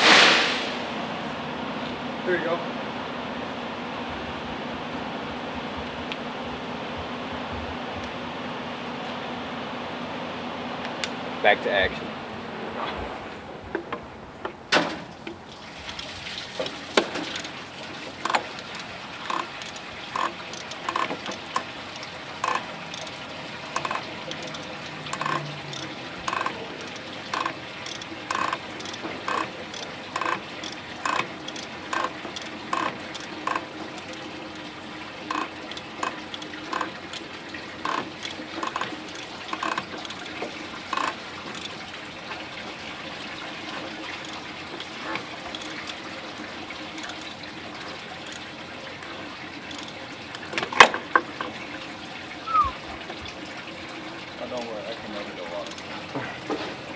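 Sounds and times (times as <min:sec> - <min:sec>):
liquid trickling into container: 0:15.1 - 0:56.9.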